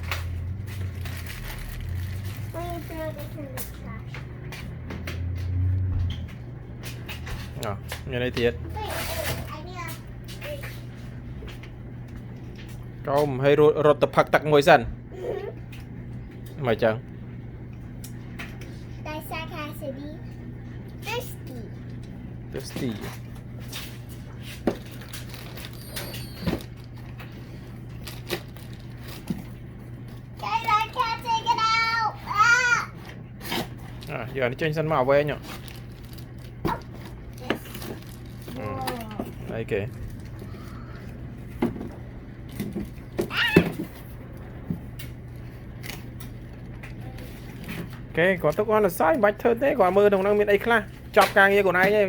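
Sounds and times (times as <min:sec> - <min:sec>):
low hum: 0:00.0 - 0:08.0
steady low hum: 0:00.0 - 0:52.0.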